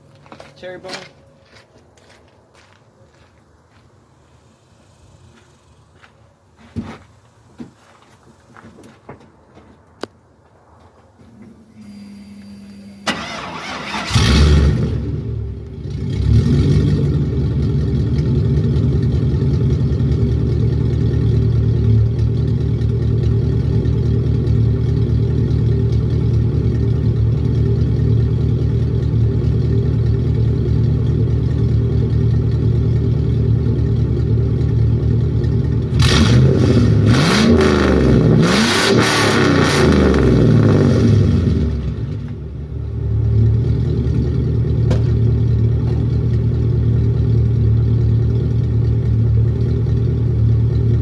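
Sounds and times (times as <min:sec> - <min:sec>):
engine revving: 0:11.8 - 0:18.9, 0:35.9 - 0:42.3
engine starting: 0:13.0 - 0:15.0
loud engine idling: 0:41.5 - 0:51.0.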